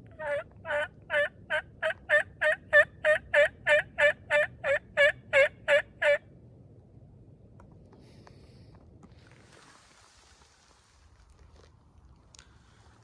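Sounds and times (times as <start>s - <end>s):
turkey yelping: 0.1s - 6.2s.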